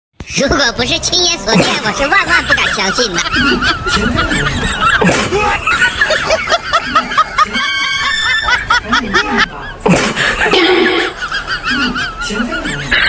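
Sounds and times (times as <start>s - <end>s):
music: 0.2s - 7.0s
people snickering and laughing: 0.8s - 12.8s.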